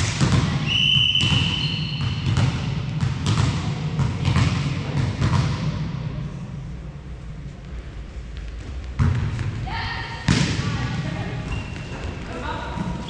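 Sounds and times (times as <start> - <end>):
volleyball bouncing on floor: 0.0 - 5.8, 8.9 - 9.6, 10.2 - 13.0
low hall rumble: 0.0 - 13.0
whistle blast: 0.6 - 2.2.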